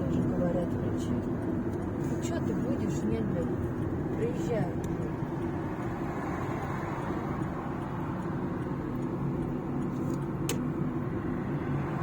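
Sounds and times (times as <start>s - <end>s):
engine and tyre drone: 0.0s - 12.0s
sharp click: 10.1s - 10.7s.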